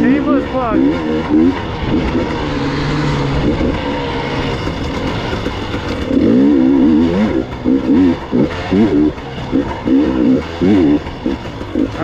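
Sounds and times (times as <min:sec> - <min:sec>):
two-stroke motorcycle engine revving: 0:00.0 - 0:12.0.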